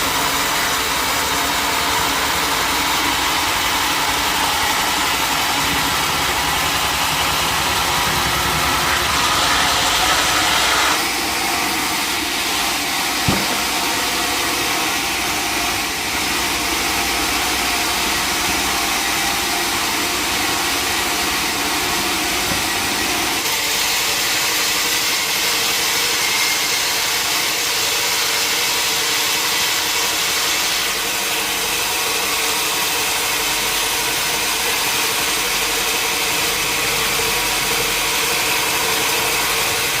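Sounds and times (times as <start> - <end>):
sawmill machinery running: 0.0 - 40.0
sharp knock: 13.2 - 13.8.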